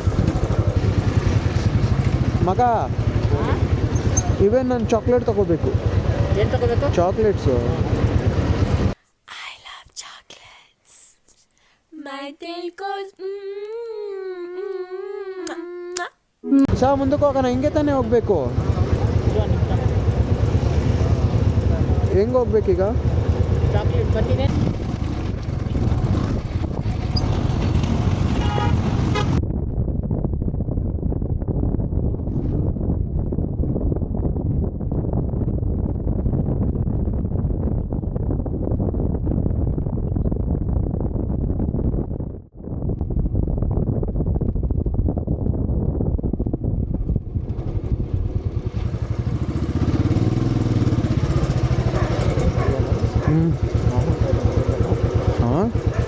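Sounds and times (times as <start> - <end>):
motorcycle engine rumble: 0.0 - 9.0, 16.6 - 56.0
wind on microphone: 23.2 - 56.0
vehicle horn toot: 28.4 - 29.4.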